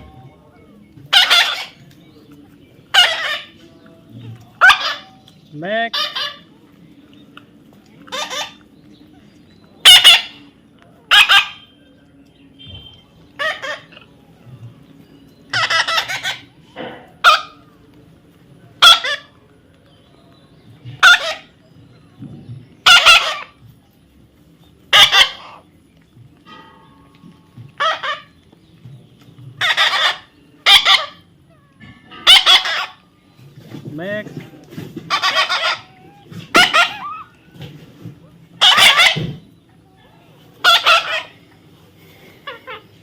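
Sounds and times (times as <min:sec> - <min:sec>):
parrot squawking: 0:01.1 - 0:01.8, 0:02.9 - 0:03.6, 0:04.6 - 0:05.2, 0:05.9 - 0:06.5, 0:08.1 - 0:08.6, 0:09.8 - 0:10.4, 0:11.1 - 0:11.7, 0:13.4 - 0:14.0, 0:15.5 - 0:16.5, 0:17.2 - 0:17.6, 0:18.8 - 0:19.3, 0:21.0 - 0:21.5, 0:22.8 - 0:23.6, 0:24.9 - 0:25.6, 0:27.8 - 0:28.3, 0:29.6 - 0:31.2, 0:32.2 - 0:33.0, 0:35.1 - 0:37.4, 0:38.6 - 0:39.3, 0:40.6 - 0:41.4.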